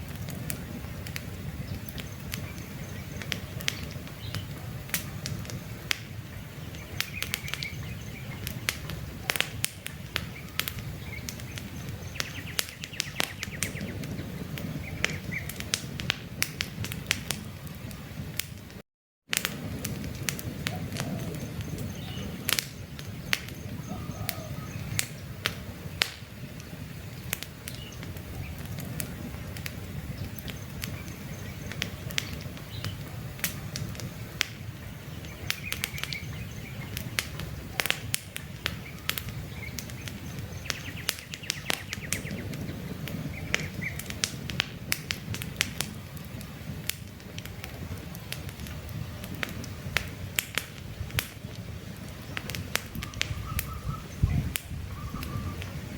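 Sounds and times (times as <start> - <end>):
campfire crackling: 0.0 - 55.9
low rumble of flames: 0.0 - 55.9
sharp pops of fire: 0.0 - 55.9.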